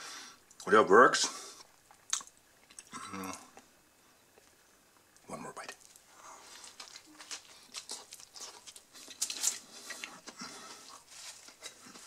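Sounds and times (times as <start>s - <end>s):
person chewing: 1.8s - 3.7s, 5.8s - 12.0s
paper wrapper rustling: 6.5s - 10.1s.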